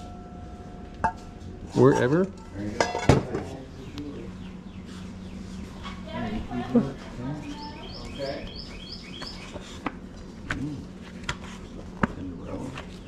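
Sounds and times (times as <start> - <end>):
songbird singing: 3.5 - 9.6.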